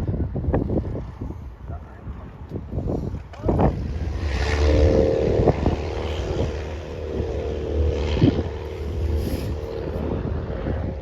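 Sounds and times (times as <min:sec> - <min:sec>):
propeller plane engine drone: 0:00.0 - 0:11.0
wind buffeting microphone: 0:00.0 - 0:11.0.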